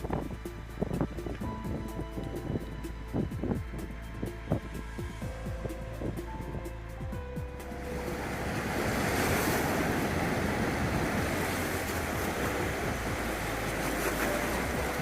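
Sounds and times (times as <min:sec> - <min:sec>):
rushing floodwater: 0:07.5 - 0:15.0.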